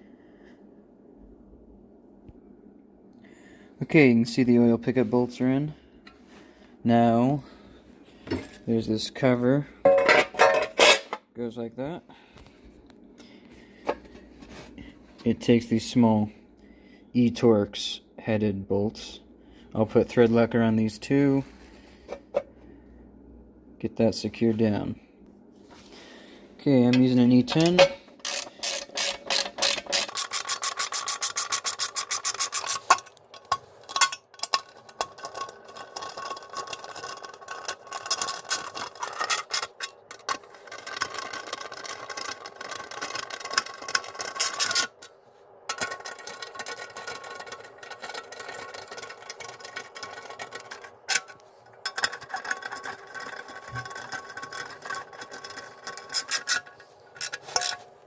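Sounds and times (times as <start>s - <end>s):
metal scraping: 9.8s - 11.2s, 26.6s - 58.0s
ratchet wrench clicking: 28.2s - 34.6s.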